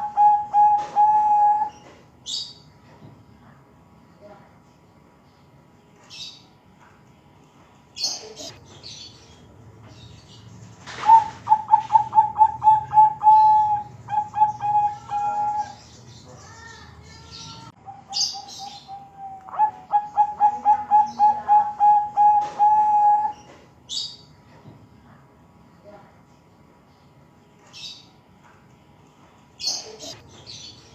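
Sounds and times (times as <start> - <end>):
dove cooing: 0.0 - 1.8, 11.0 - 15.8, 17.8 - 23.4.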